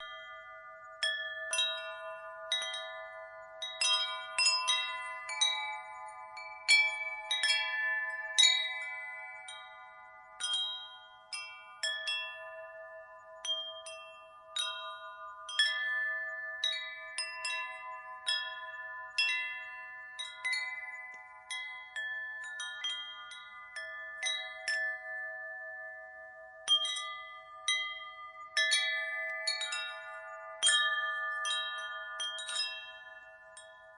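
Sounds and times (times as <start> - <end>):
wind chime ringing: 0.0 - 33.9.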